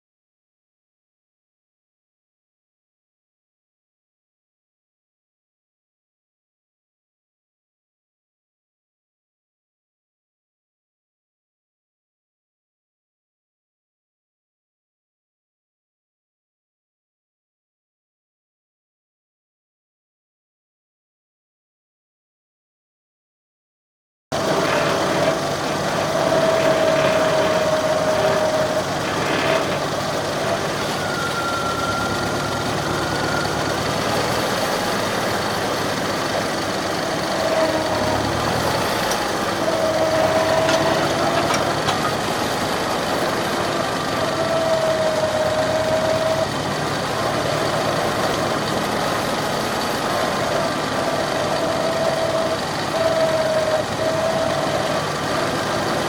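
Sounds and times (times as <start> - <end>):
tractor engine running: 24.3 - 56.0.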